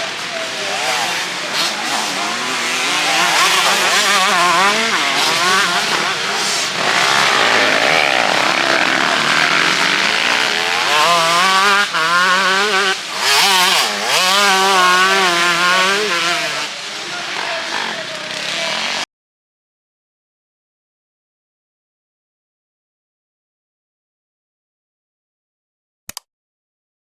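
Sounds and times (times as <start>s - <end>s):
motocross motorcycles revving: 0.0s - 19.1s.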